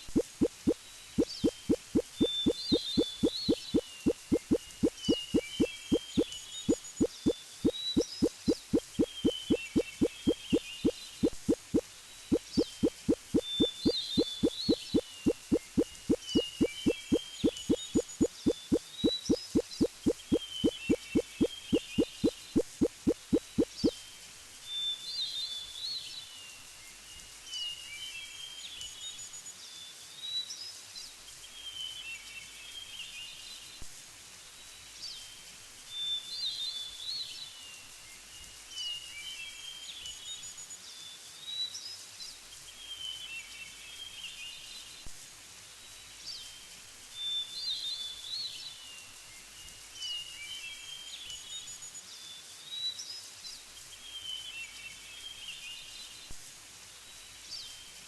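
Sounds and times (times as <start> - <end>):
songbird singing: 0.0 - 24.0
faint background hiss: 0.0 - 58.0.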